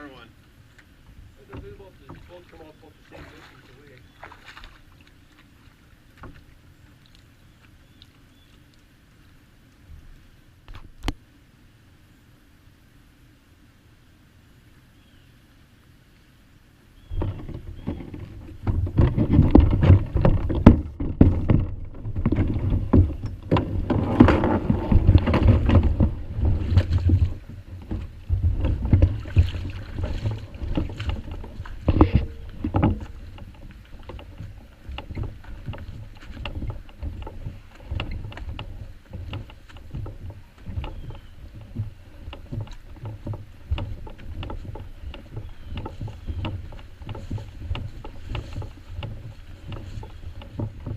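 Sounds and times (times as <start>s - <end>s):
paddle splashing water: 0.0s - 11.6s, 17.0s - 50.9s
wind rumble on microphone: 17.0s - 50.9s.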